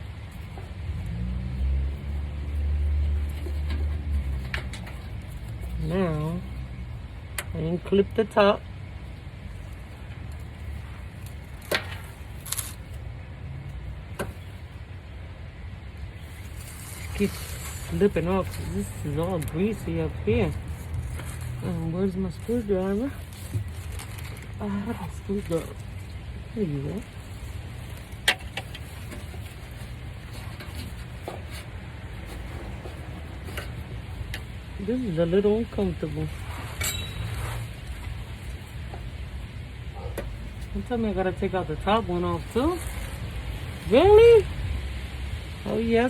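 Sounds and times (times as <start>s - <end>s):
tool scraping metal: 36.5s - 37.8s
hand tools tapping metal: 36.8s - 37.4s.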